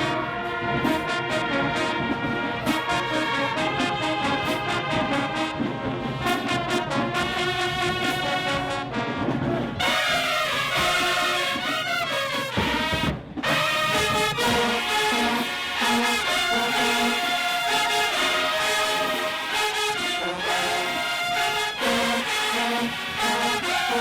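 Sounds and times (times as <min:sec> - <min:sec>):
marching band brass playing: 0:00.0 - 0:24.0.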